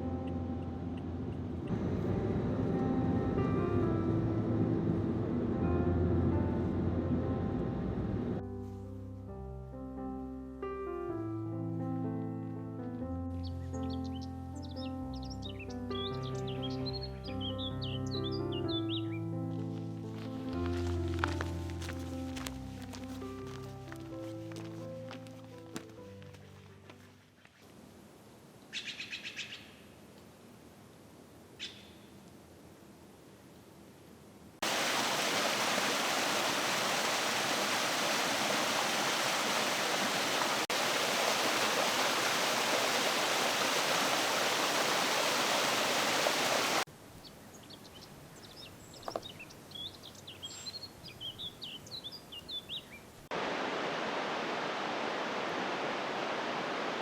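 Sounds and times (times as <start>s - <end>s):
small birds chirping: 13.4s - 19.3s, 28.7s - 29.9s, 31.6s - 32.2s, 42.8s - 53.2s
rushing creek water: 34.6s - 46.9s, 53.3s - 57.0s.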